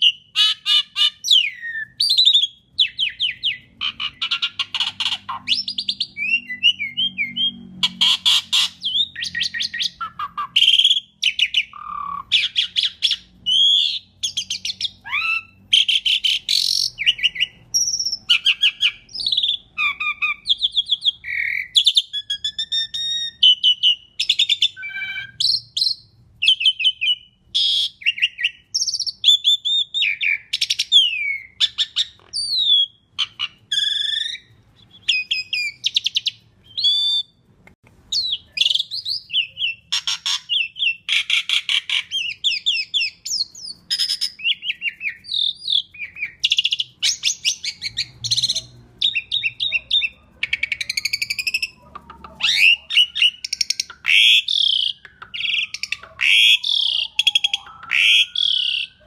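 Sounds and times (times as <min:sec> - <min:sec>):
starling singing varied song: 0:00.0 - 0:31.9.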